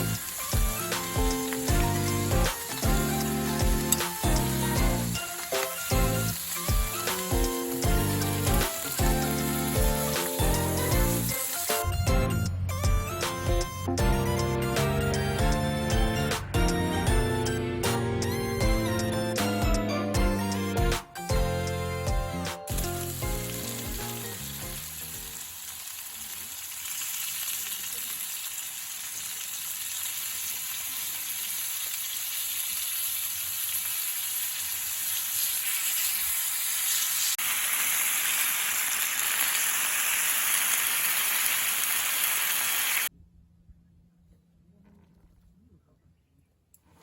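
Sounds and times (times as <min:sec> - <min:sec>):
food sizzling in a pan: 0:00.0 - 0:11.9, 0:22.7 - 0:43.1
background music: 0:00.0 - 0:25.0.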